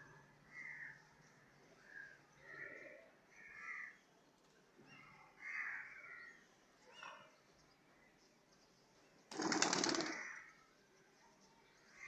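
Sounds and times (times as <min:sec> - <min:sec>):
rapid wing flapping: 0:09.3 - 0:10.4.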